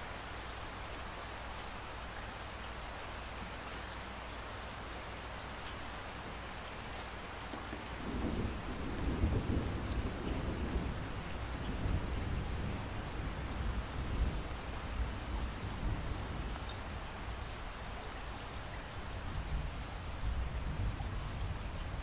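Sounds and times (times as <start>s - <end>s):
rain falling: 0.0s - 22.0s
thunder rumbling: 7.6s - 16.6s.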